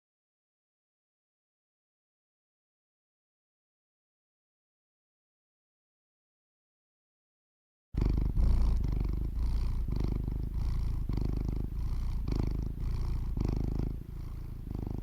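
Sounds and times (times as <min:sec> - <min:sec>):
cat purring: 0:08.0 - 0:15.0.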